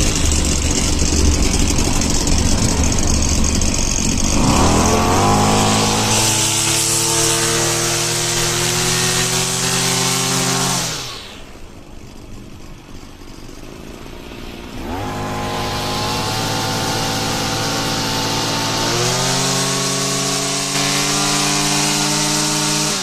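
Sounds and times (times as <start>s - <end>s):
brush cutter engine revving: 0.0s - 23.0s.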